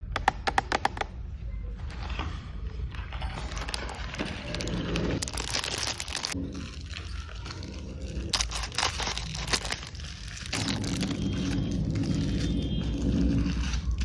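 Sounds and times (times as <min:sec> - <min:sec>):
packaging rustling and crinkling: 0:03.0 - 0:14.0.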